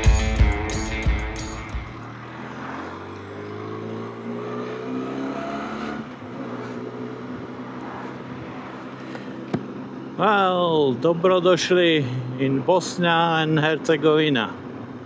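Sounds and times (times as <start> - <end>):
motorcycle engine accelerating: 0.0 - 7.6
wind and road noise: 0.0 - 15.0.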